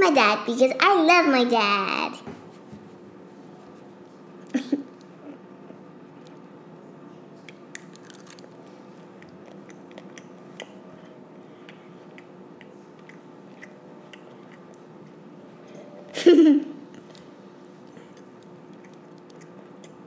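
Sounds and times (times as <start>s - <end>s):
steady low hum: 0.0s - 20.0s
child chewing food: 7.4s - 16.1s, 16.9s - 20.0s.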